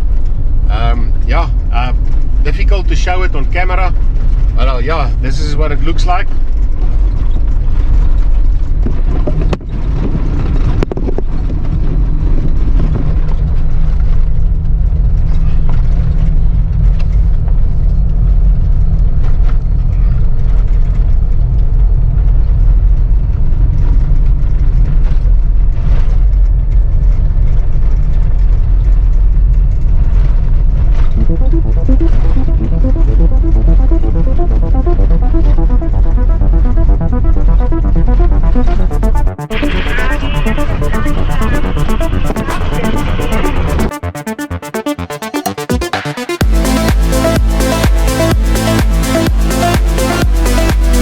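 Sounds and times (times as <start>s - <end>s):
off-road vehicle rumbling: 0.0s - 31.2s.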